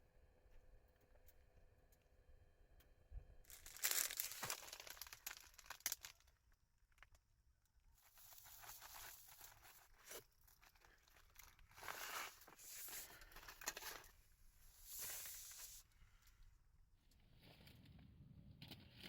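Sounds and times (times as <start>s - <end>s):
plastic crinkling and rustling: 3.5s - 6.4s, 8.0s - 14.2s.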